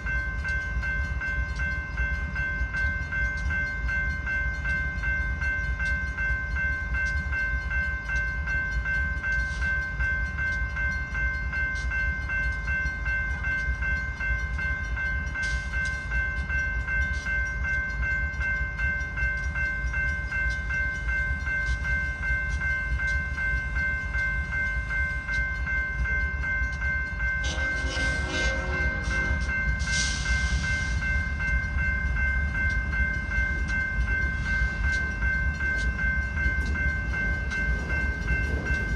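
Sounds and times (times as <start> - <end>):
railroad crossing bell ringing: 0.0 - 38.9
steady low rumble: 33.1 - 38.9.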